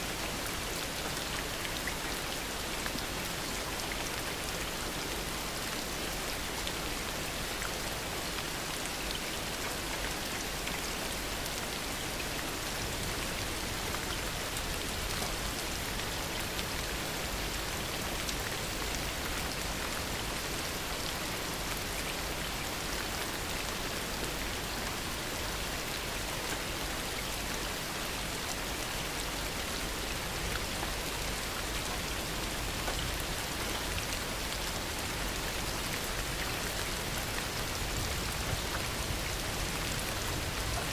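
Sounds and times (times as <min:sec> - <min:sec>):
heavy rain falling: 0:29.8 - 0:40.9.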